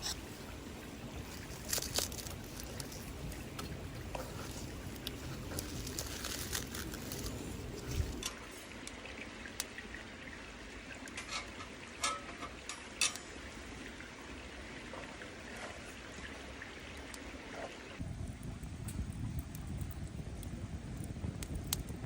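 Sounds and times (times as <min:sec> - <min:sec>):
fire hissing: 0:00.0 - 0:08.3
wood fire crackling and popping: 0:00.0 - 0:08.4, 0:18.0 - 0:22.0.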